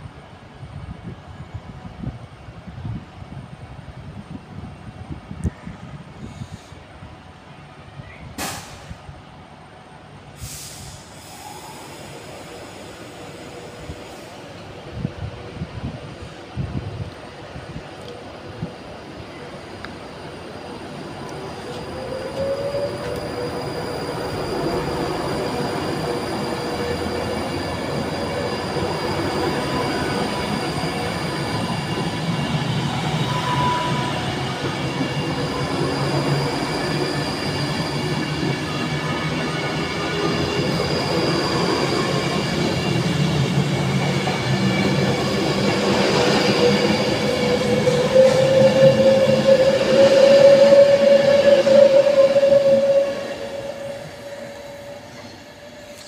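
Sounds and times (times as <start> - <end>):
electric train whine: 0.0 - 56.0.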